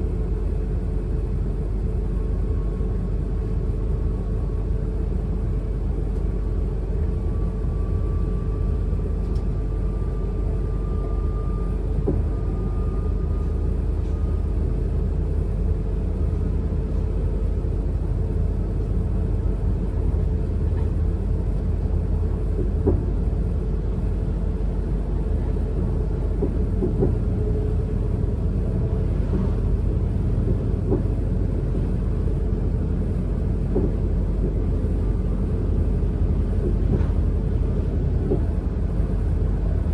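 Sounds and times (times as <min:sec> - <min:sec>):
faint train whine: 0:00.0 - 0:39.9
train rumble inside carriage: 0:00.0 - 0:39.9.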